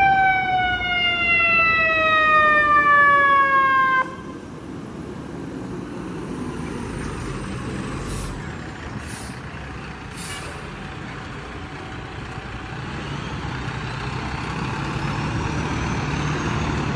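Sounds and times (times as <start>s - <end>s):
fire truck engine running: 0.0s - 3.5s, 4.4s - 16.9s
air brake hisses: 7.9s - 9.5s, 10.1s - 10.7s.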